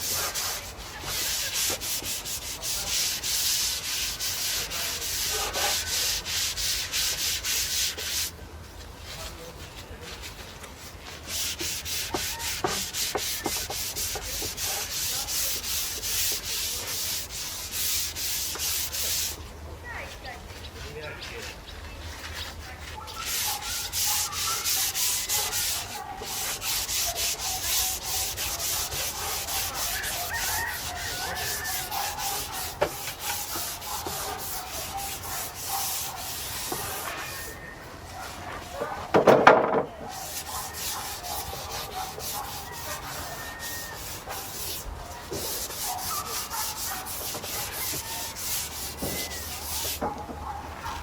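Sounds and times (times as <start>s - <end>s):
brush scrubbing wooden planks: 0.0s - 8.4s, 9.0s - 37.6s, 38.2s - 51.0s.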